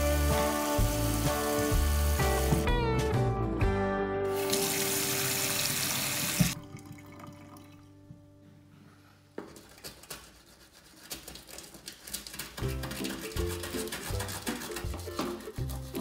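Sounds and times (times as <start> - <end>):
tap water running into sink: 4.4 - 7.8
scratchy brushing: 9.7 - 16.0.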